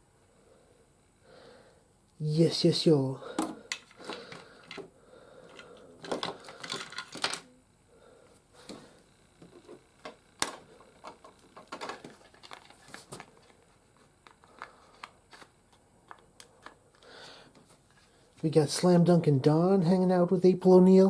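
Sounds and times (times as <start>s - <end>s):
hard plastic clicks and clatter: 5.5s - 7.4s.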